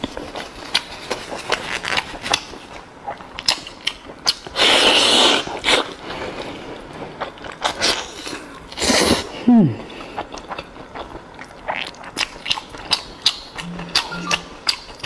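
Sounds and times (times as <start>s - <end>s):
wet chewing and smacking: 0.0s - 9.0s, 9.8s - 15.0s.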